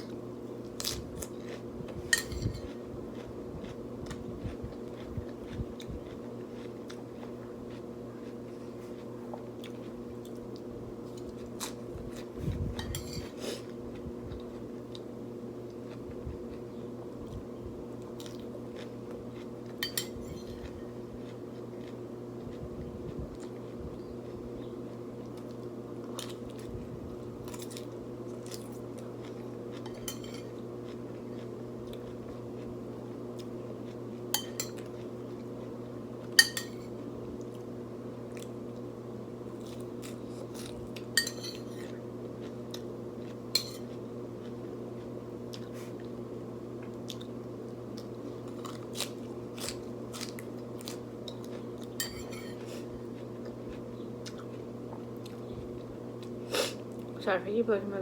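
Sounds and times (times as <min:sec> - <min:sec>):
crunching and chewing food: 0:00.0 - 0:57.2
steady low hum: 0:00.0 - 0:58.0
fork clinking against dish: 0:02.1 - 0:02.6, 0:19.8 - 0:20.7, 0:29.9 - 0:30.5, 0:34.3 - 0:34.9, 0:36.4 - 0:36.8, 0:41.2 - 0:41.8, 0:43.6 - 0:43.9, 0:52.0 - 0:52.6.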